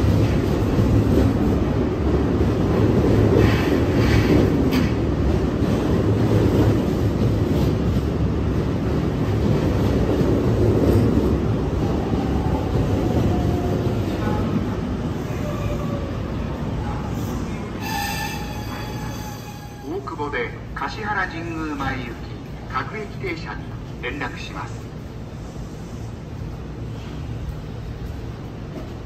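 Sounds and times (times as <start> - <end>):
electric train wheels rumbling: 0.0 - 21.7
train wheels squealing: 17.8 - 19.9.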